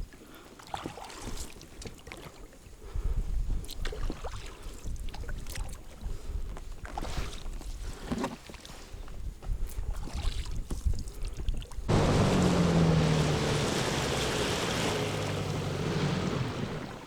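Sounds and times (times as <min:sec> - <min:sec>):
low wind rumble: 0:11.9 - 0:17.0
motor humming: 0:11.9 - 0:17.0.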